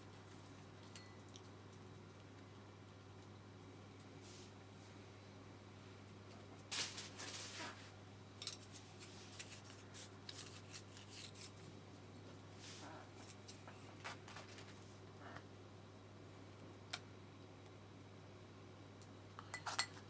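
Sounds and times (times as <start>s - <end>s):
low steady hum: 0.0s - 20.0s
kitchen utensils clicking and scraping: 8.4s - 11.6s.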